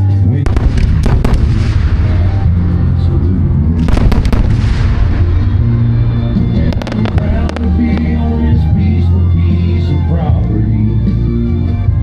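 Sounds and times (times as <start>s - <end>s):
fireworks bangs and crackles: 0.4s - 2.8s, 3.8s - 8.3s
song with steady bass line: 2.0s - 12.0s.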